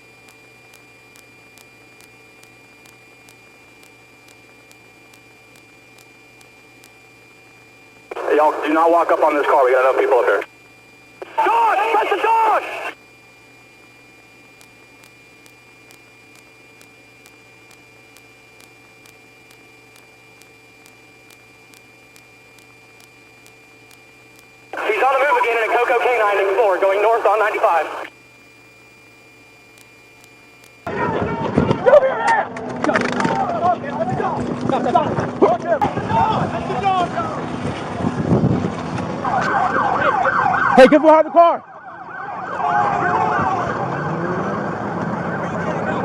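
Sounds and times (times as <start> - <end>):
faint regular ticks: 0.0 - 8.2, 13.9 - 24.8, 28.0 - 30.9
electrical hum and hiss: 0.0 - 30.9
high steady tone: 0.0 - 30.9.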